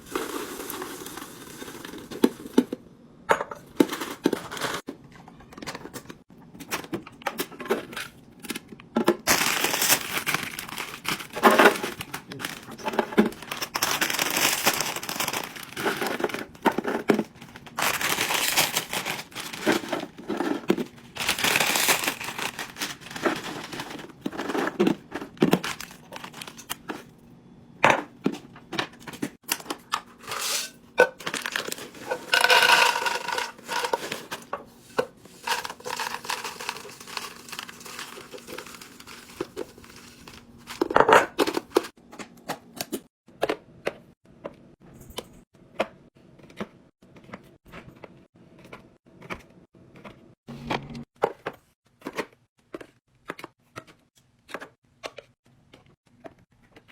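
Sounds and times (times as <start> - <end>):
items being handled and set down: 0.0 - 27.1, 27.8 - 44.0
plastic packaging crinkling: 9.3 - 26.8, 31.2 - 34.5, 35.3 - 41.9.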